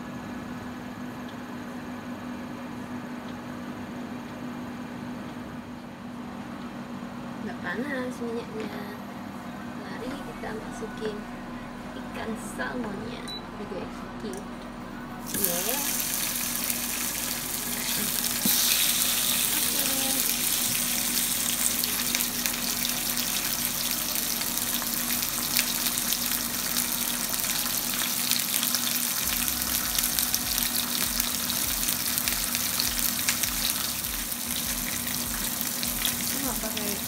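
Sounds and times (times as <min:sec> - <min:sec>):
fish sizzling in hot oil: 0:15.2 - 0:37.0.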